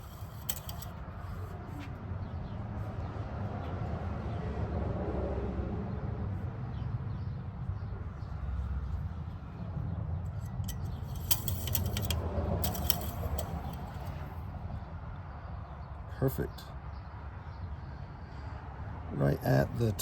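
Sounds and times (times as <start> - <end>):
dipstick metallic clicks: 0.0 - 1.5, 10.3 - 14.4.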